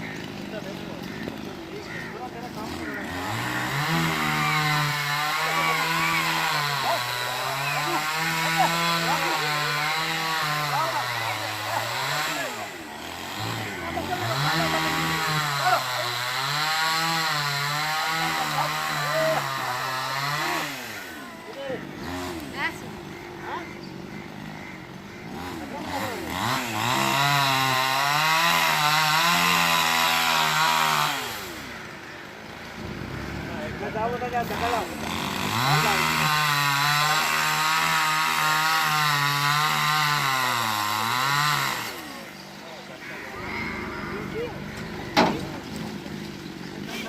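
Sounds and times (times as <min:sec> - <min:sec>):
chainsaw cutting a tree: 0:00.0 - 0:33.6, 0:34.2 - 0:43.1.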